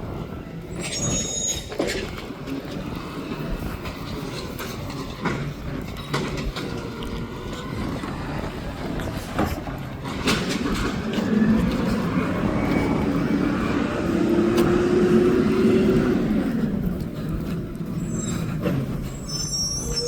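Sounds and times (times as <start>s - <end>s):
garbage truck engine revving: 10.1s - 17.2s.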